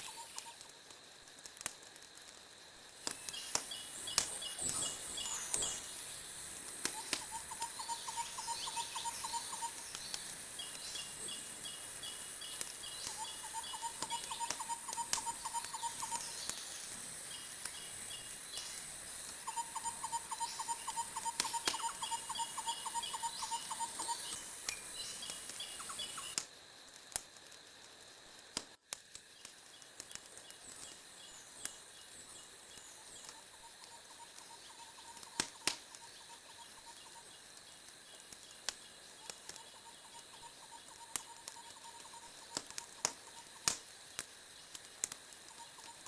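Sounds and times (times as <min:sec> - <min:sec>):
faint rapid chirping: 0:00.0 - 0:28.5, 0:29.1 - 0:46.0
wood fire crackling: 0:00.0 - 0:46.0.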